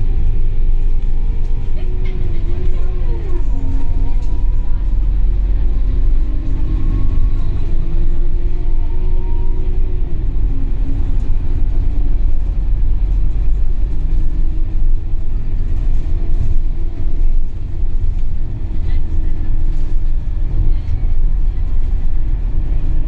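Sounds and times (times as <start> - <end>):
bus diesel engine rumble: 0.0 - 23.0.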